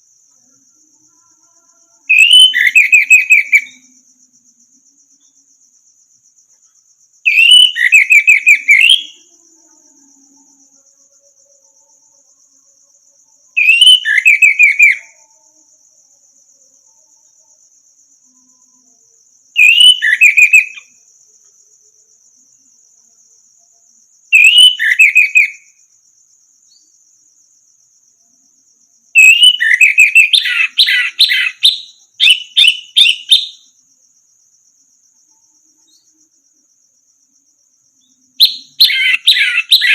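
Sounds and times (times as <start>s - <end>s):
high insect-like buzz: 0.0s - 39.9s
bird singing whistled notes: 2.1s - 4.0s, 7.3s - 9.3s, 13.6s - 15.2s, 19.6s - 20.9s, 24.3s - 25.7s, 29.2s - 33.7s, 38.0s - 39.9s.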